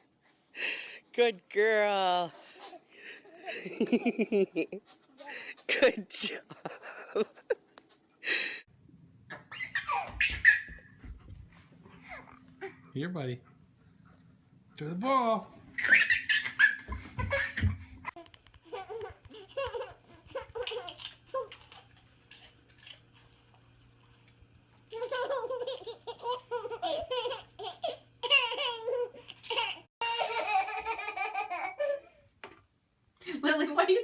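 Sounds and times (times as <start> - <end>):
steady low hum: 5.4 - 9.8.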